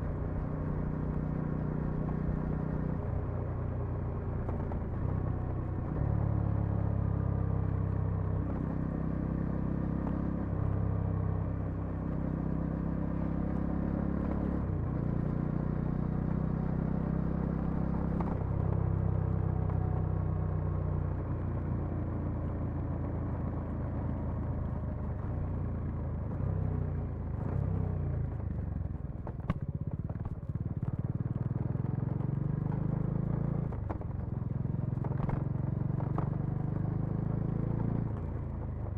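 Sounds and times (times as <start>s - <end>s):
motorcycle engine running: 13.1s - 38.9s.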